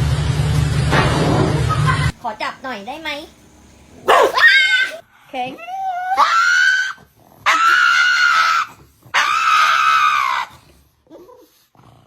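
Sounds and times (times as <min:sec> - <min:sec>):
animal screaming: 0:04.1 - 0:05.0, 0:05.8 - 0:10.6.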